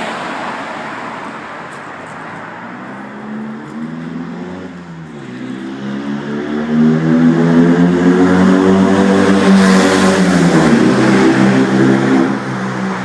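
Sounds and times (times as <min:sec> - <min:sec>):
car engine revving in tunnel: 0:02.8 - 0:13.0.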